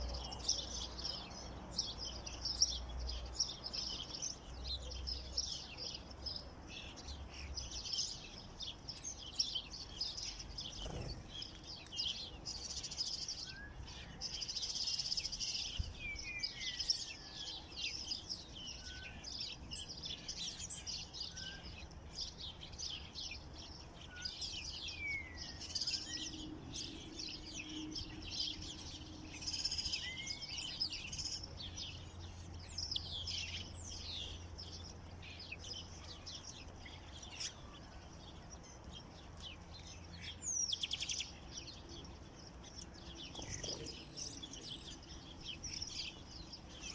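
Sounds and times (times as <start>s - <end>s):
songbirds chirping: 0.0s - 46.9s.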